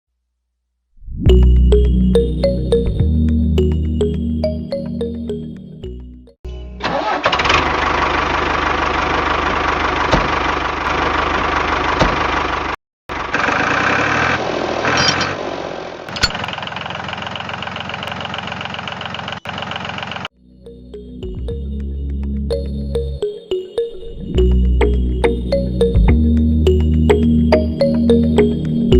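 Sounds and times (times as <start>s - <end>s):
small engine running: 6.8s - 20.3s.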